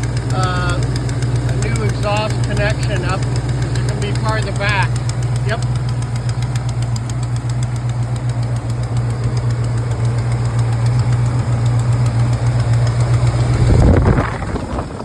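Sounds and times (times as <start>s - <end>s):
car engine idling: 0.0s - 15.0s
exhaust leak pulsing: 0.0s - 15.0s.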